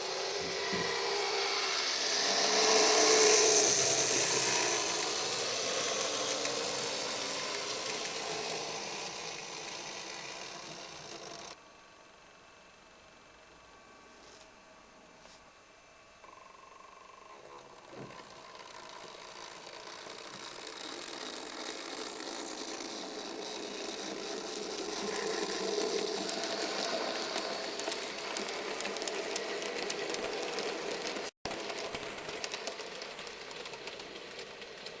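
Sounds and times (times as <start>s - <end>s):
model train motor whirring: 0.0s - 11.6s, 17.1s - 35.0s.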